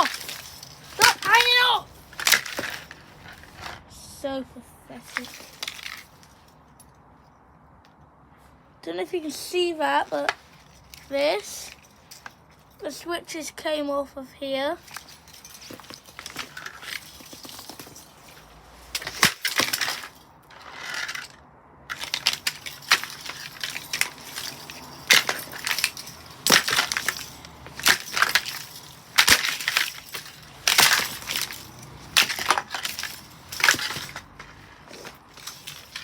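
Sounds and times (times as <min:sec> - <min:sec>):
fan heater being smashed: 0:00.0 - 0:03.7, 0:14.8 - 0:20.2, 0:20.8 - 0:36.0.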